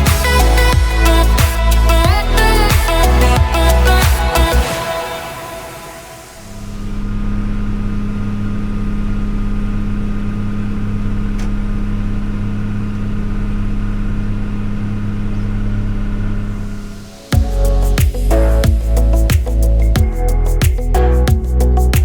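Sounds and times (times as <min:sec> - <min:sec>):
music: 0:00.0 - 0:06.4, 0:17.2 - 0:22.0.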